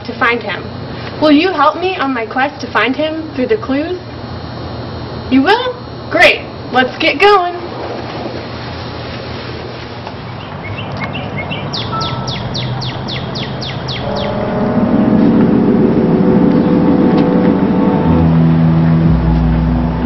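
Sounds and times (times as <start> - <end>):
steady sound with low tones: 0.0 - 20.0
songbird chirping: 10.3 - 15.5.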